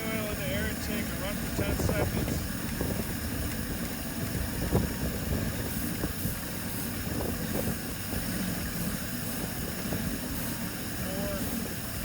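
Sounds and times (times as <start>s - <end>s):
boat engine idling: 0.0s - 12.0s
oil spraying: 0.0s - 12.0s.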